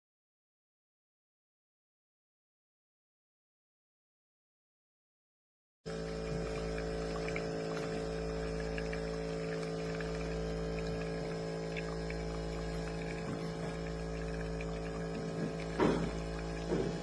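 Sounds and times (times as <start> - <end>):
espresso machine pump humming: 5.9 - 17.0.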